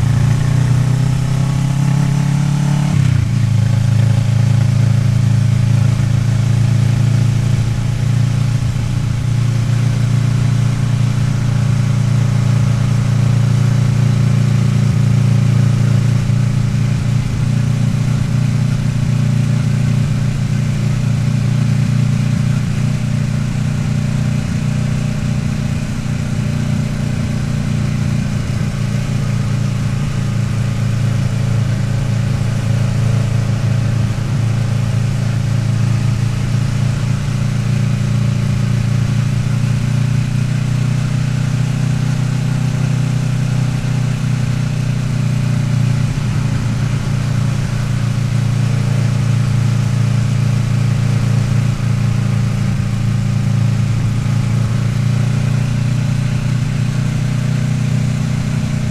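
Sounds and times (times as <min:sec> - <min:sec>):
motorcycle engine cruising: 0:00.0 - 0:58.9.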